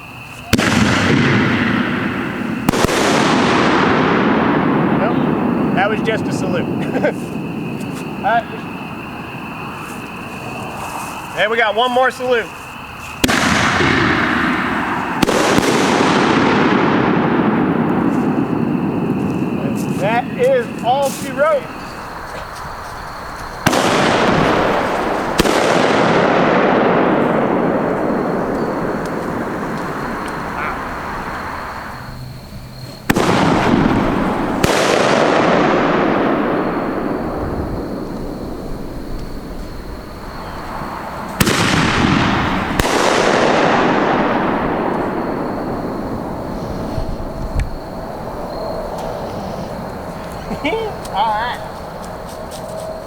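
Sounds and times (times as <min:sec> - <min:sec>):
fireworks sharp cracks: 0:00.2 - 0:52.7
rolling echo: 0:00.4 - 0:52.3
long rushing noise: 0:23.4 - 0:49.8.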